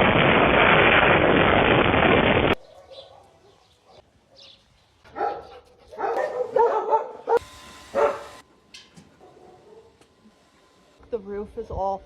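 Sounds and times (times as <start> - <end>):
dog barking: 2.6 - 8.3, 9.2 - 10.0.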